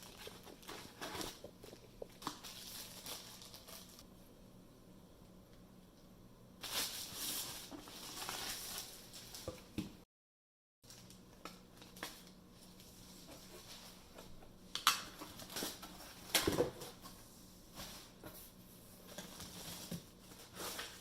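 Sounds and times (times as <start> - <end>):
paper and plastic rustling: 0.0 - 4.0, 6.6 - 9.8, 15.0 - 21.0.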